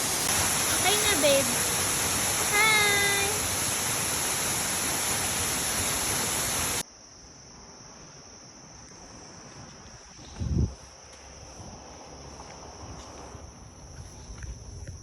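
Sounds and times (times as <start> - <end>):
falling water rushing: 0.0 - 6.8
shrill insect chorus: 0.0 - 15.0.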